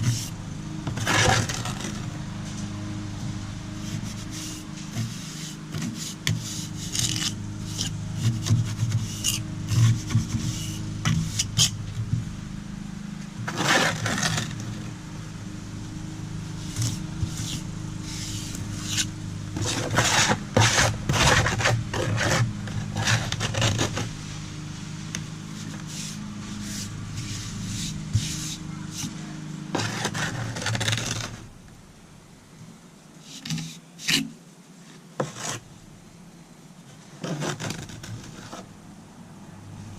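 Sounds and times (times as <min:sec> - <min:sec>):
hand tool scraping concrete: 0:00.0 - 0:02.5, 0:03.8 - 0:11.8, 0:13.4 - 0:14.9, 0:16.5 - 0:24.2, 0:25.1 - 0:31.4, 0:33.2 - 0:34.4, 0:35.2 - 0:35.7, 0:37.2 - 0:38.7
steady low hum: 0:00.0 - 0:39.9.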